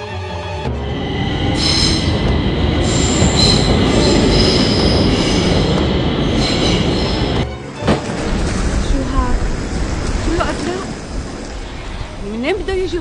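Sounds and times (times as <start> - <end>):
train rumbling on rails: 0.1 - 13.0
high-pitched wheel squeal: 0.8 - 5.5.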